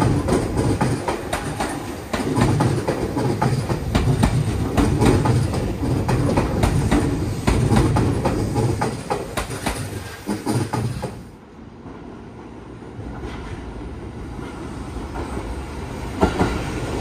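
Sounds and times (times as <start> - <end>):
train wheels clacking over rail joints: 0.0 - 11.3
train low rumble: 0.0 - 17.0.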